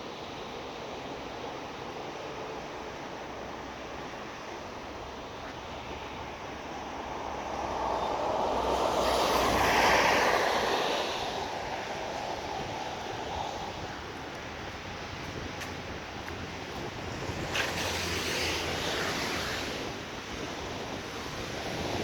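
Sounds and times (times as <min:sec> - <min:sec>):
traffic noise: 0:00.0 - 0:22.0
rain: 0:04.8 - 0:22.0
car tyres hissing through water: 0:06.1 - 0:22.0.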